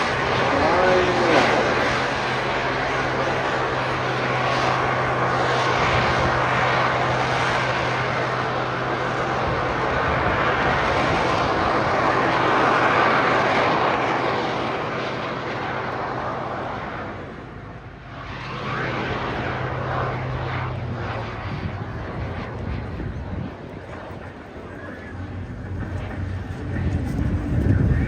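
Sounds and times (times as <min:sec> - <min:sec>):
jet aircraft engine rush: 0:00.0 - 0:28.0.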